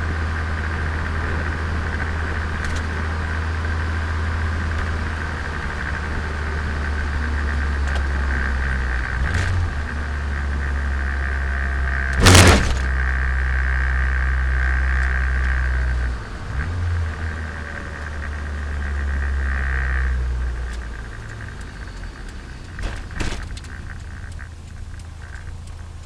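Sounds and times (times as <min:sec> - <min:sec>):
car engine running: 0:00.0 - 0:26.0
sharp clicks: 0:20.4 - 0:26.0.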